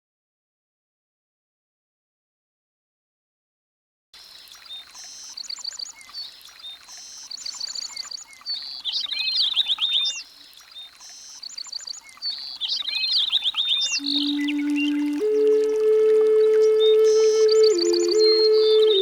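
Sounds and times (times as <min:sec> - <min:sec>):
songbird singing: 0:04.2 - 0:19.0.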